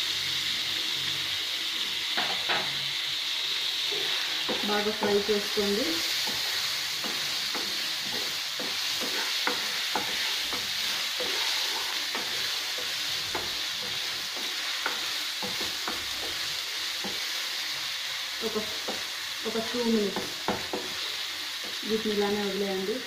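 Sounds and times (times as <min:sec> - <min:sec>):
vegetables sizzling in hot oil: 0:00.0 - 0:23.0
wooden spatula scraping a pan: 0:03.8 - 0:17.6.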